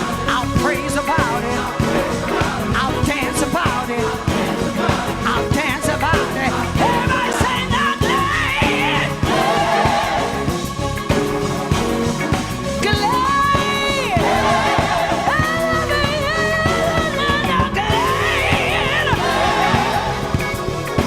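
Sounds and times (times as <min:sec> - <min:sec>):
voices singing call-and-response: 0:00.0 - 0:11.1, 0:13.8 - 0:21.0
band with drums playing: 0:00.0 - 0:21.0.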